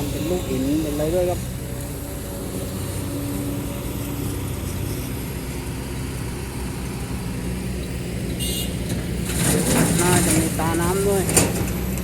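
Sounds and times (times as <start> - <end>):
excavator diesel engine running: 0.0 - 12.0
excavator digging into rock: 8.8 - 12.0.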